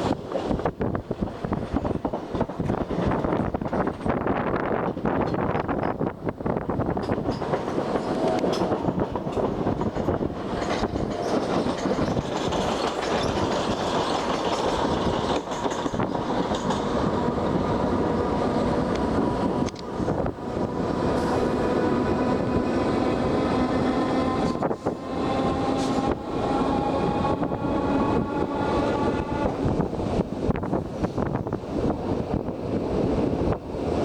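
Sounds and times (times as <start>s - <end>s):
train rumbling on track: 0.0s - 34.0s
wheels clicking over rail joints: 1.5s - 17.6s.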